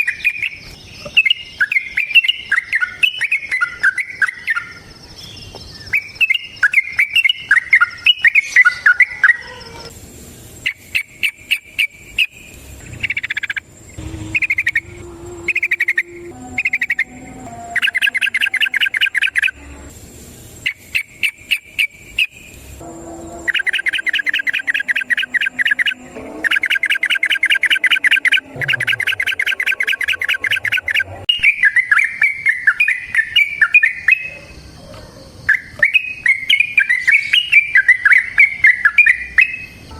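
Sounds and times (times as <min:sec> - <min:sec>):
bird singing warbled phrases: 0:00.0 - 0:09.9, 0:10.6 - 0:19.9, 0:20.6 - 0:22.6, 0:23.4 - 0:39.9
bird trilling rattle: 0:13.0 - 0:13.7, 0:14.3 - 0:19.6, 0:23.4 - 0:31.1.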